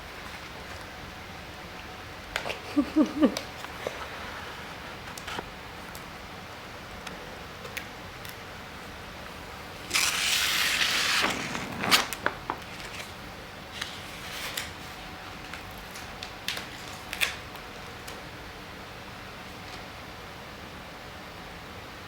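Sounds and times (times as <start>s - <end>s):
loud rustling scrape: 9.9s - 12.2s
light clicks and crinkles: 13.8s - 18.2s.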